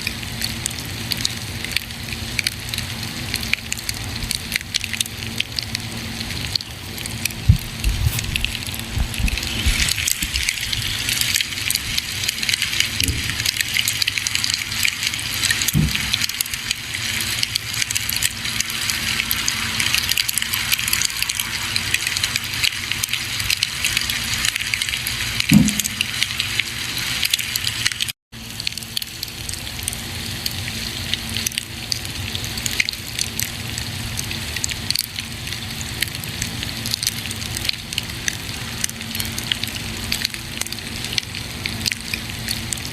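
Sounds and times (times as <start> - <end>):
campfire crackling and popping: 6.4 - 30.0.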